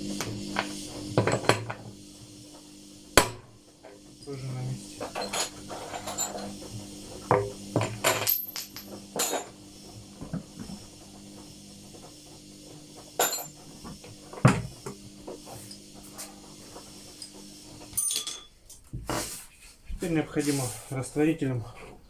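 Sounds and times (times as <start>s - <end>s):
tools knocking on workbench: 13.2s - 14.7s.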